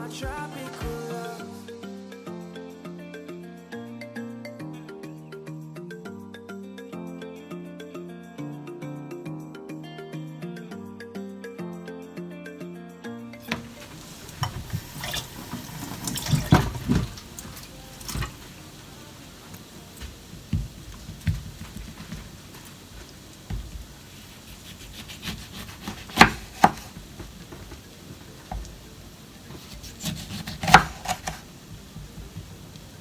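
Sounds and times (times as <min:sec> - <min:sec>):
tap water running into sink: 0:13.4 - 0:24.8, 0:25.4 - 0:29.9.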